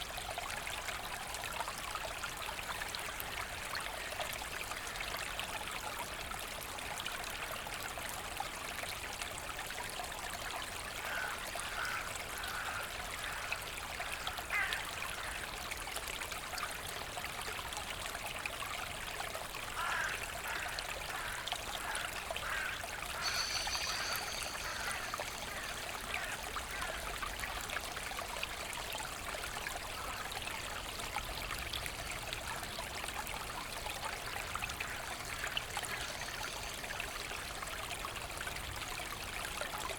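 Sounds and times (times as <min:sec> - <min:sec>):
brook trickling and splashing: 0:00.0 - 0:39.9
bird calling short notes: 0:23.2 - 0:26.4
high bird whistle: 0:23.2 - 0:26.4.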